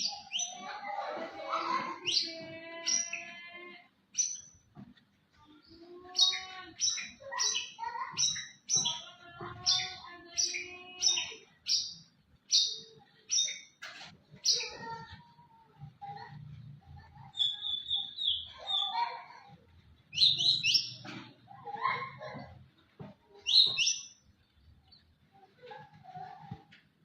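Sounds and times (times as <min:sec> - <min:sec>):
bird singing: 0:00.0 - 0:00.9, 0:01.5 - 0:04.7, 0:05.5 - 0:15.3, 0:16.1 - 0:19.3, 0:20.0 - 0:22.5, 0:23.4 - 0:25.1.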